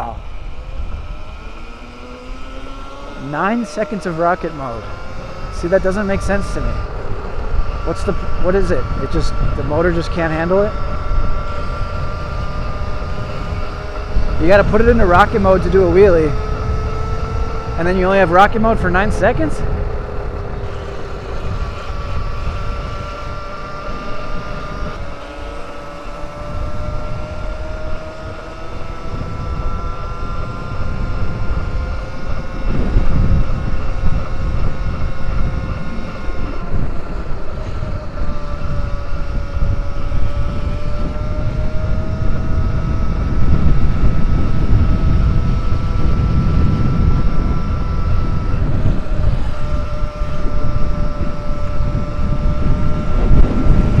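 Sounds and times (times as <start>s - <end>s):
electric motorbike motor whining: 0.0s - 54.0s
wind on microphone: 0.0s - 54.0s.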